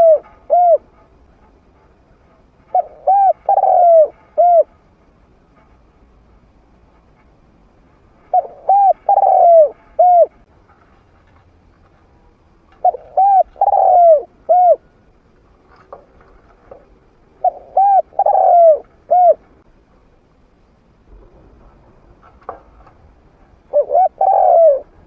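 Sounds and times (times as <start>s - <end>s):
dove cooing: 0.0s - 0.9s, 2.7s - 4.7s, 8.3s - 10.4s, 12.8s - 14.9s, 16.7s - 19.5s, 23.7s - 25.0s.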